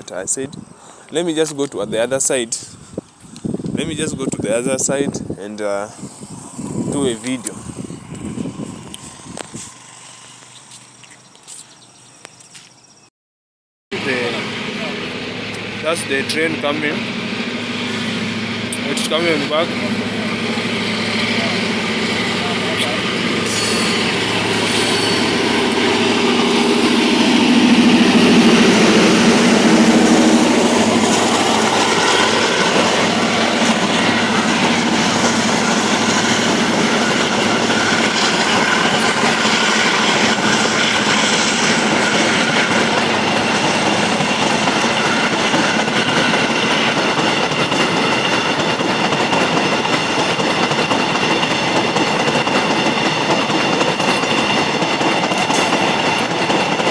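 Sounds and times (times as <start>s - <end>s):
train wheels rumbling on rails: 3.4s - 11.4s, 14.0s - 56.9s
wheels squealing: 20.2s - 56.9s.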